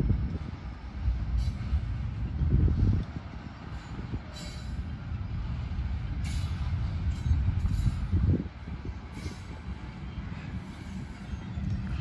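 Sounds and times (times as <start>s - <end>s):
freight wheels rumbling over rail joints: 0.0s - 12.0s
high-pitched train squeals: 1.4s - 1.8s, 3.7s - 5.0s, 6.2s - 8.2s, 9.1s - 12.0s.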